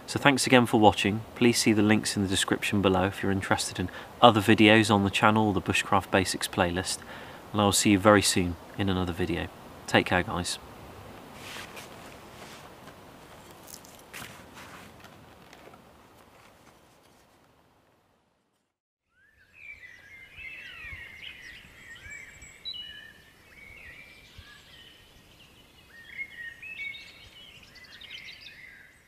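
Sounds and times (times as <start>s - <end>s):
faint clicks and rustles: 11.1s - 18.0s
birds chirping and whistling: 19.1s - 29.0s.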